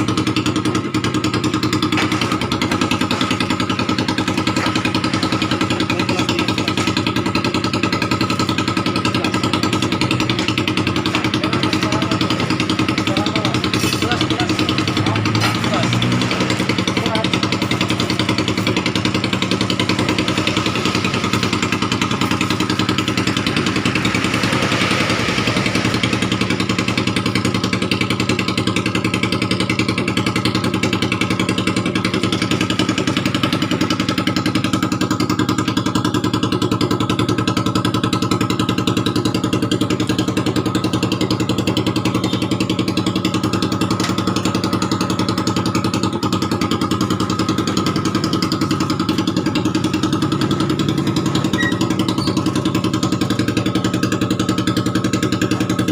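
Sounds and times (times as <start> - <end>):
motorcycle engine idling: 0.0 - 55.9.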